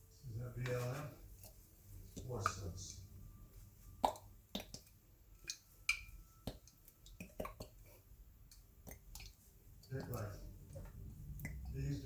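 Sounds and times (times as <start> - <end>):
thin steady tone: 0.0 - 12.0.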